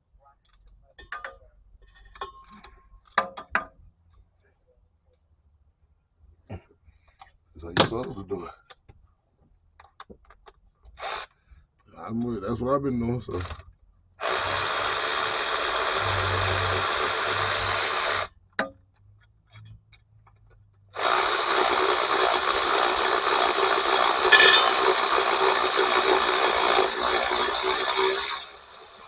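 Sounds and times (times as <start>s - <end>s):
handheld power tool running: 14.2s - 18.3s, 21.0s - 29.0s.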